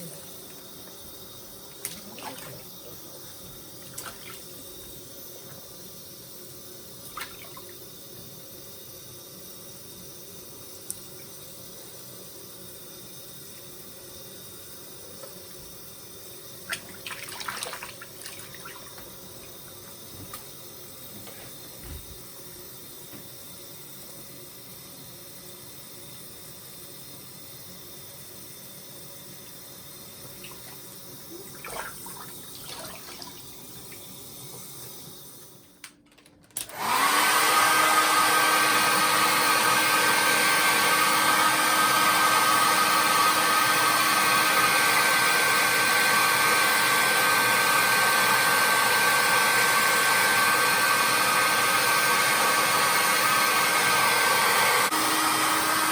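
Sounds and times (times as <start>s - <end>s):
hair dryer running: 36.6s - 55.9s.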